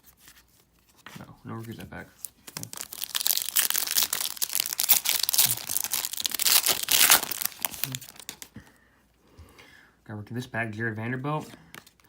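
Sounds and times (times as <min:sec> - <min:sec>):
plastic wrapper tearing and crinkling: 0:02.2 - 0:08.5.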